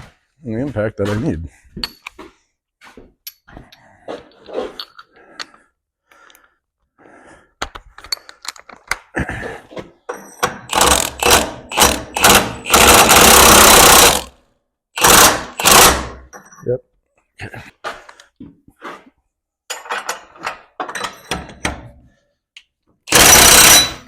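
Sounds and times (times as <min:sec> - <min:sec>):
tools clinking: 0:01.8 - 0:02.2, 0:07.6 - 0:09.0, 0:19.7 - 0:21.8
impact wrench hammering: 0:10.4 - 0:14.3, 0:15.0 - 0:16.3, 0:23.1 - 0:24.0.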